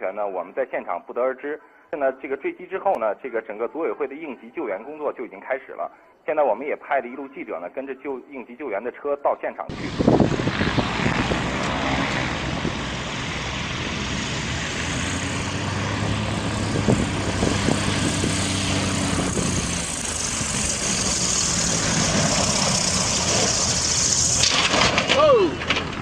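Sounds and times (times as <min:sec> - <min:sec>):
aircraft engine drone: 0:09.7 - 0:24.9.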